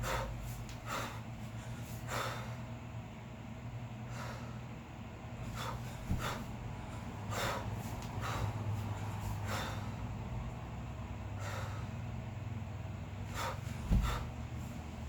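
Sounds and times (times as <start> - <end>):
sharp forceful breaths: 0.0 - 2.7, 4.0 - 4.8, 5.4 - 10.2, 11.3 - 12.1, 13.2 - 15.0
low steady hum: 0.0 - 15.0
dull thud: 13.8 - 14.3.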